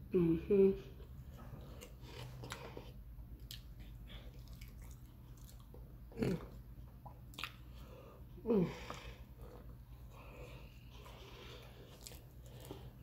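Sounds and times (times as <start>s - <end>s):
person chewing wetly: 1.1s - 8.0s, 9.1s - 13.0s.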